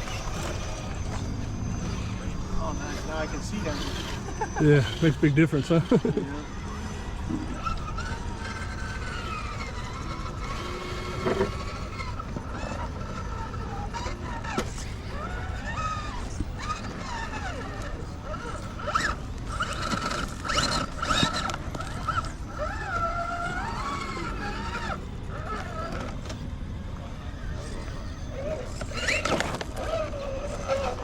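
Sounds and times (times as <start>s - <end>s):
small electric motors whining: 0.0s - 31.0s.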